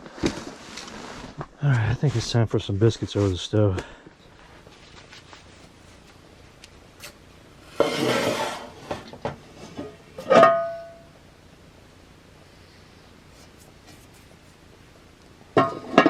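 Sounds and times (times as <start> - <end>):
metal cookware scraping: 7.7 - 10.8
metal clank ringing: 9.8 - 11.1.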